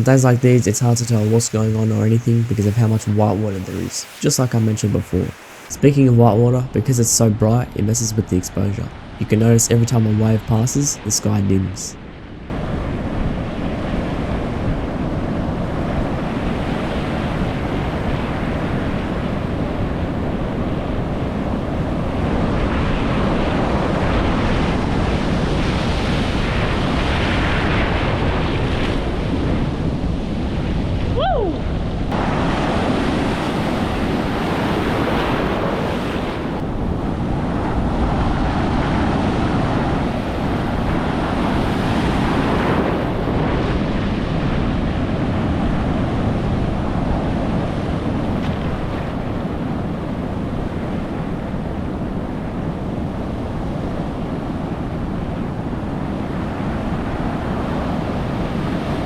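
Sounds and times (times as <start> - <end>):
waves breaking on rocky shore: 0.0 - 6.0, 31.6 - 59.0
wind buffeting microphone: 0.0 - 6.9, 11.5 - 59.0.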